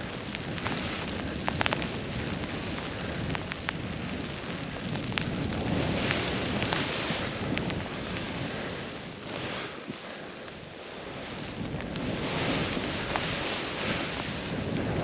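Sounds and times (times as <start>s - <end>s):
wind on microphone: 0.0s - 15.0s
snowboard hissing through snow: 5.3s - 15.0s.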